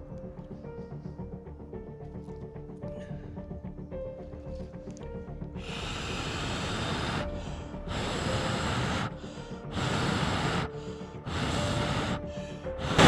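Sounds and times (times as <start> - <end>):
person blowing puffs of air: 5.6 - 13.0.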